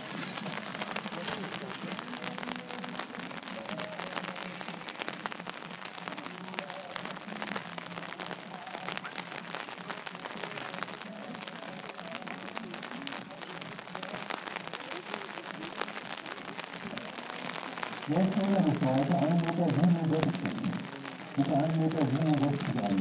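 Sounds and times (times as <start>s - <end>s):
faint distant voices: 0.0s - 23.0s
light rain pattering: 0.0s - 23.0s.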